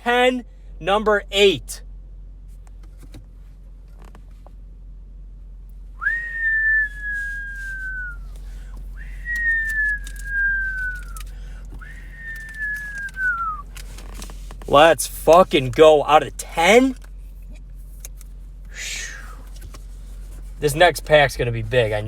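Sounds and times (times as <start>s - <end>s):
person whistling long notes: 6.0s - 8.3s, 9.0s - 11.2s, 11.8s - 13.6s.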